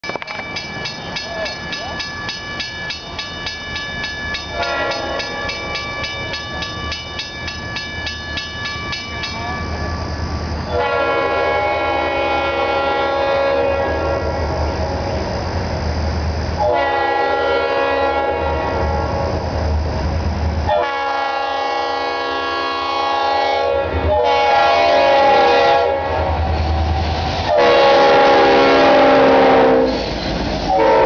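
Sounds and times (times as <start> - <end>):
locomotive air horn blasts: 4.6 - 5.2, 10.7 - 14.5, 16.6 - 19.2, 20.7 - 26.4, 27.5 - 30.1, 30.7 - 31.0.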